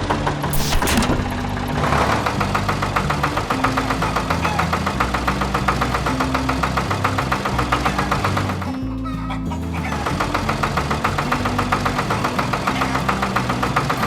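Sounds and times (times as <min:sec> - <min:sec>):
brief whoosh: 0:00.5 - 0:01.8.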